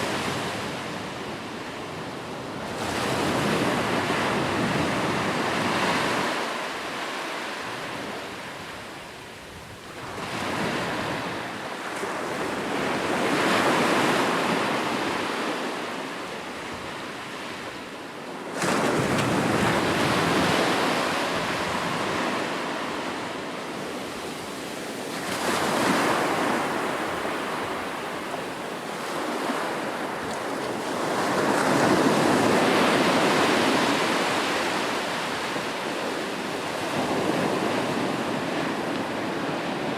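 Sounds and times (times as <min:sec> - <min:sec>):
ocean waves breaking: 0:18.5 - 0:39.9.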